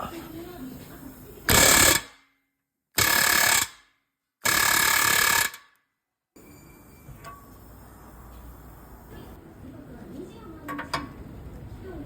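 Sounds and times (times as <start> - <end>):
pneumatic air hammer rattling: 1.5 - 2.2, 3.0 - 5.8.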